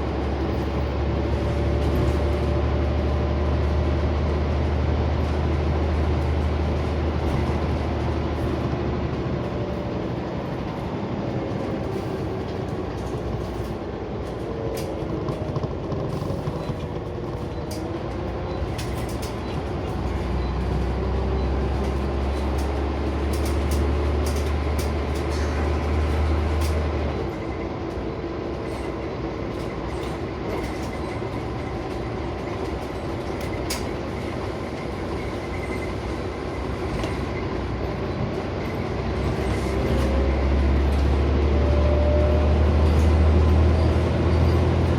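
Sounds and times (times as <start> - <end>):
bus diesel engine droning: 0.0 - 44.9
interior clicks and rattles: 11.5 - 20.5.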